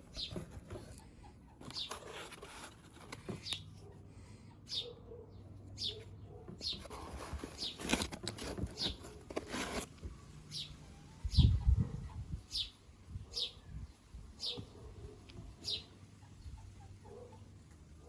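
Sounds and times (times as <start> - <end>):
small bird chirping: 0.0 - 2.1, 4.6 - 7.9, 10.5 - 14.8, 15.6 - 17.0.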